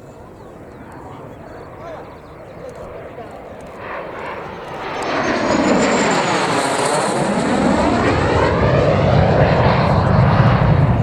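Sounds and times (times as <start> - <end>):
jet passing low: 0.0 - 11.0.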